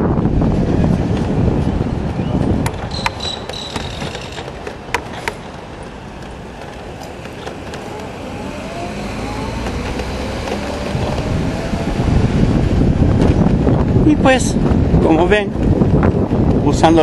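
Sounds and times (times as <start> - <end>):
road and wind noise: 0.0 - 17.0
faint rising whines: 7.0 - 13.0.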